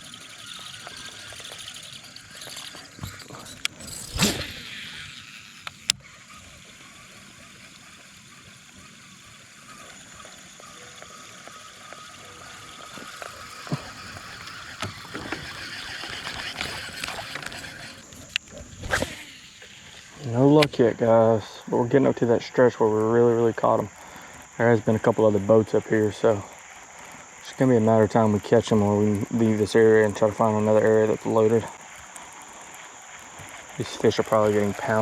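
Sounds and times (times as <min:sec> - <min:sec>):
steady outdoor hiss: 0:00.0 - 0:35.0.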